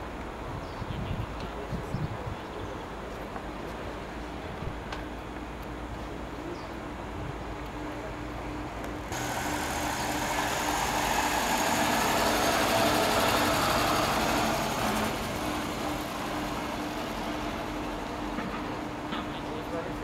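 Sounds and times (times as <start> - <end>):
car engine driving past: 9.1 - 17.7.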